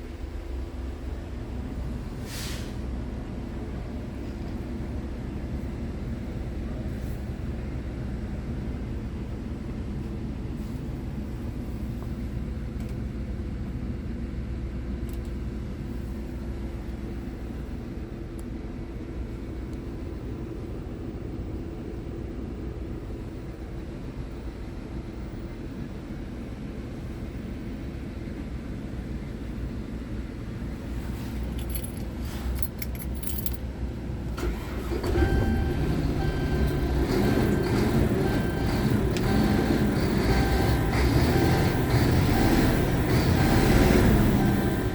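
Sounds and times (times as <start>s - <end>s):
diesel truck engine running: 0.0s - 14.9s, 33.6s - 44.9s
truck engine rumbling: 29.0s - 44.9s
keys jangling: 31.5s - 33.6s
high electronic beep: 35.2s - 44.9s.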